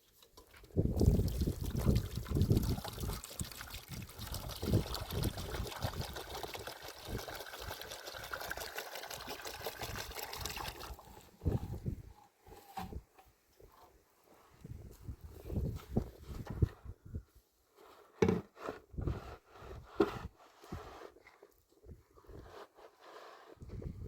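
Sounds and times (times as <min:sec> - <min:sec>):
water pouring and trickling: 0:00.0 - 0:11.9.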